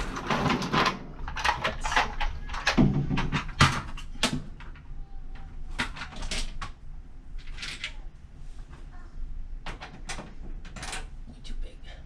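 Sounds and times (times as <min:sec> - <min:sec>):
tools rattling and scraping: 0:00.0 - 0:04.8.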